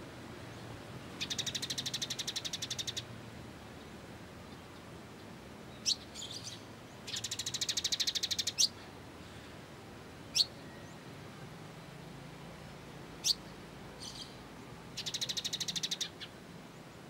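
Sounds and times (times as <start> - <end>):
songbird fast trill: 1.2 - 3.1, 5.8 - 8.8, 10.3 - 10.9, 13.2 - 14.4, 15.0 - 16.3
songbird sharp chirps: 1.2 - 3.1, 5.7 - 8.8, 10.3 - 11.0, 13.2 - 16.4.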